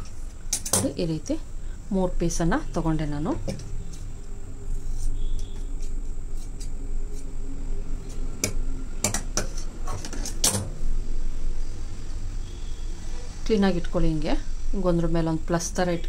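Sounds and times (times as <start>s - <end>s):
steady low hum: 0.0s - 16.0s
tools clicking and tapping: 8.1s - 10.7s.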